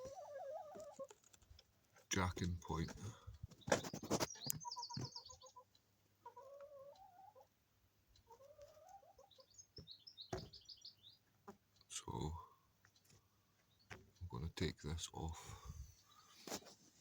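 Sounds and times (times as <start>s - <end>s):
songbird warbling and twittering: 2.7s - 5.7s, 9.2s - 11.3s, 15.5s - 16.4s.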